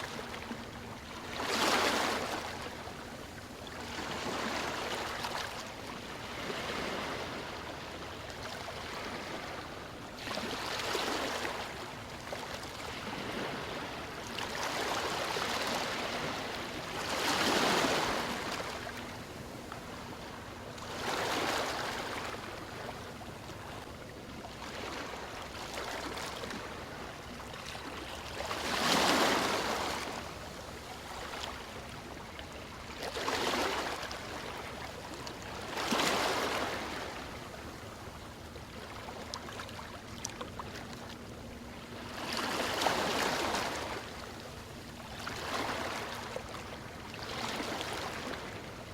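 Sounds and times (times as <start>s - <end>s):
waves breaking: 6.2s - 23.8s, 24.5s - 37.8s, 41.9s - 44.4s, 45.1s - 48.8s.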